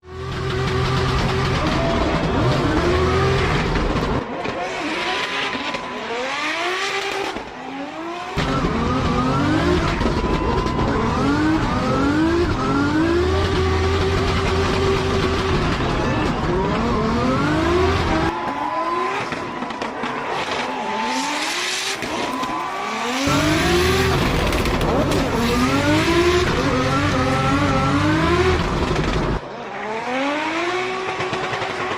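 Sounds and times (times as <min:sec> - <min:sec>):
car engine revving hard: 0:00.1 - 0:19.4, 0:20.3 - 0:31.9
tyres squealing and skidding: 0:01.3 - 0:12.8, 0:15.0 - 0:27.9.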